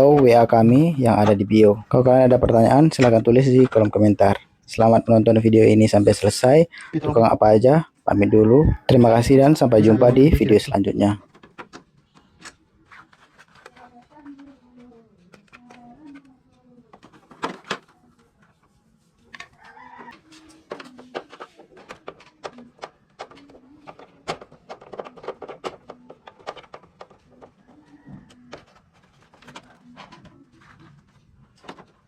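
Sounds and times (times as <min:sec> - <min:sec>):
chickens clucking: 0:08.1 - 0:10.9.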